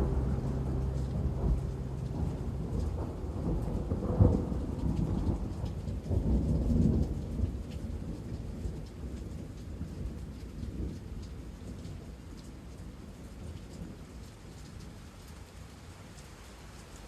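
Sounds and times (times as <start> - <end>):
low thunder rumbling: 0.0 - 11.6
rain falling steadily: 0.0 - 17.0.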